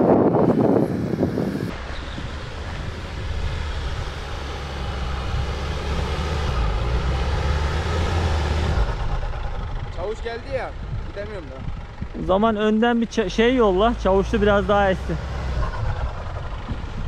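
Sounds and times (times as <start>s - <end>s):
car engine droning under load: 0.0s - 17.0s.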